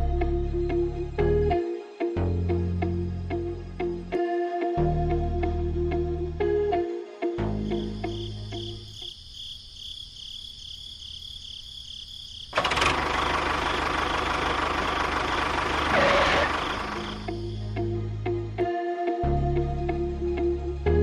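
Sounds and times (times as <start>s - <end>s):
small engine running: 12.5s - 17.5s.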